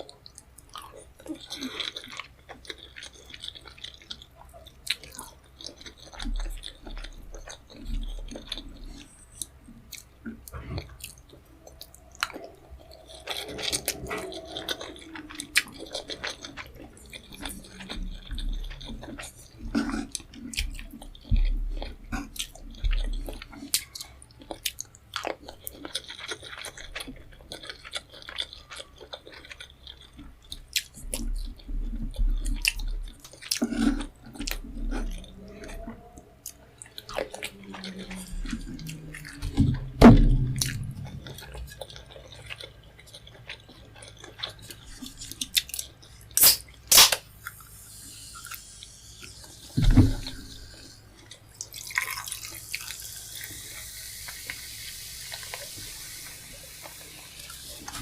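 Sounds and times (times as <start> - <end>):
chewing food with wet smacks: 0.0 - 58.0
louder thumps: 39.6 - 41.4, 49.8 - 50.3
sharp mouth clicks: 46.4 - 47.6.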